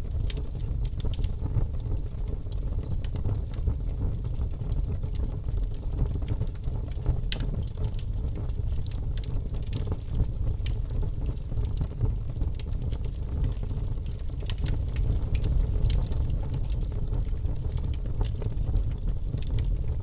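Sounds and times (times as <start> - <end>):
burning logs crackling and popping: 0.0 - 20.0
fire flames rumbling: 0.0 - 20.0.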